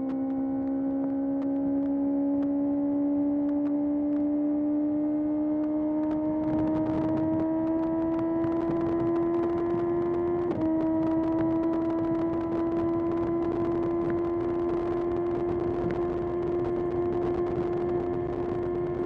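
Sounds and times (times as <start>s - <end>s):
motorcycle engine accelerating: 0.0s - 19.0s
wind noise: 5.6s - 19.0s.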